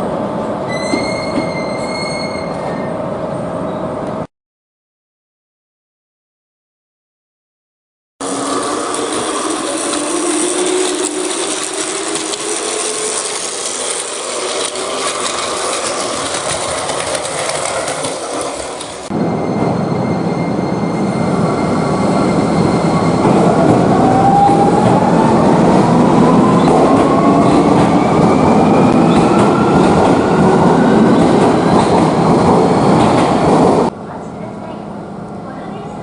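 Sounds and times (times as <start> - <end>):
electric train on rails: 0.0 - 4.3, 8.2 - 36.0
traction motor whine rising: 8.2 - 19.2.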